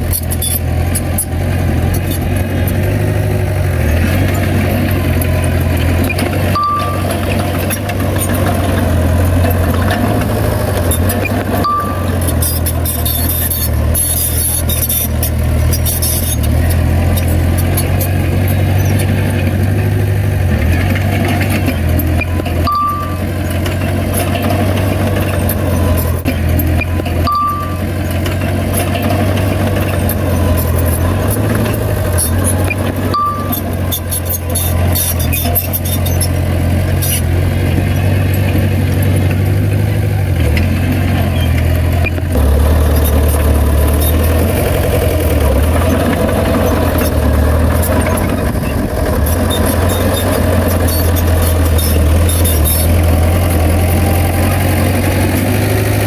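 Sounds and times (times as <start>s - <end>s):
heavy diesel machinery running: 0.0s - 56.0s
reversing beeps: 4.9s - 9.0s, 11.0s - 15.1s, 21.7s - 24.6s, 25.3s - 31.1s, 32.2s - 36.4s.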